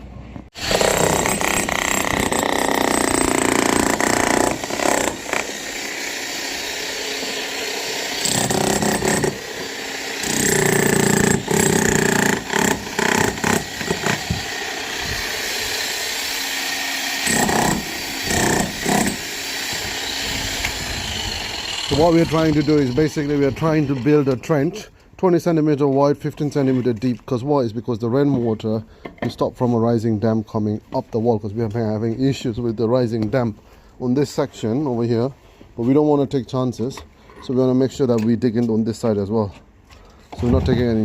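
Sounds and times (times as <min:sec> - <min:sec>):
power tool running: 0:00.6 - 0:23.0.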